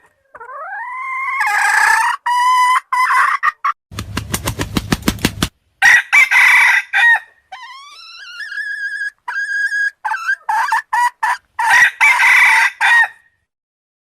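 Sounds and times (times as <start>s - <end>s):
roosters crowing: 5.8s - 8.6s, 11.6s - 13.2s.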